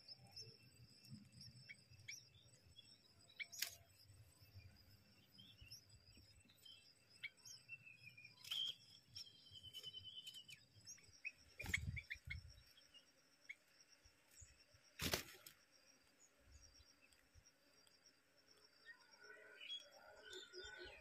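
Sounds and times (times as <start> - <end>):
small birds chirping and peeping: 0.0 - 21.0
wing flutter and rustling: 3.4 - 4.0, 9.6 - 12.6, 14.3 - 17.9.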